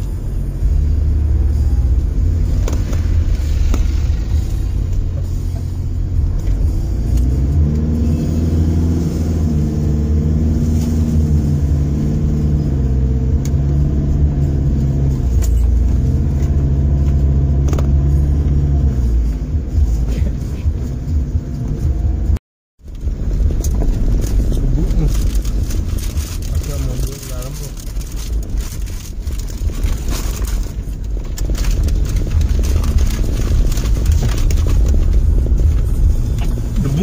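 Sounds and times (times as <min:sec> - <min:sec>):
car engine working hard: 0:00.0 - 0:37.0.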